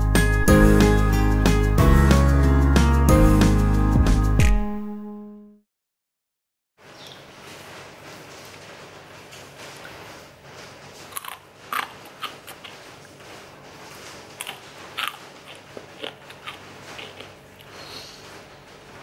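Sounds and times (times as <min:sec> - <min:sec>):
crunchy food chewing: 0:10.9 - 0:18.5.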